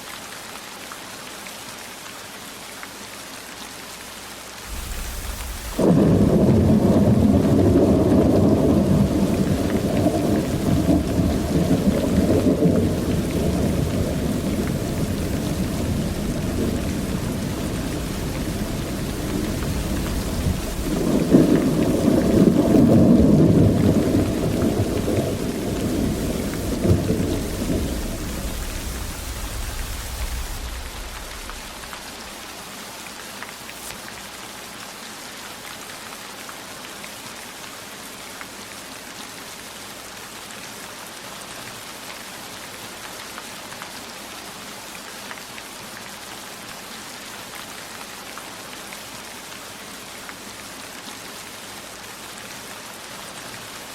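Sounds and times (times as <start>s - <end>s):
heavy rain: 0.0s - 53.9s
thunder rumbling: 4.7s - 32.4s.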